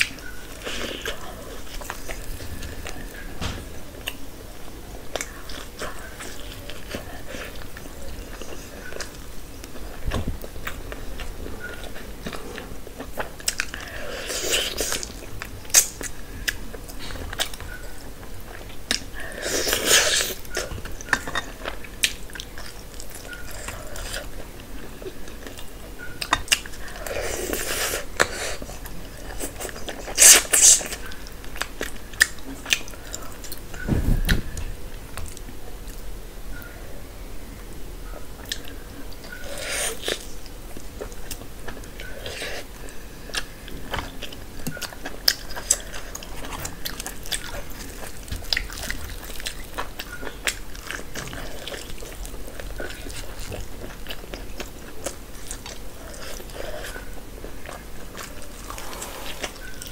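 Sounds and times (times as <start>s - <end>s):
dull thump: 33.8s - 34.7s
chewing and biting chicken: 38.4s - 59.9s.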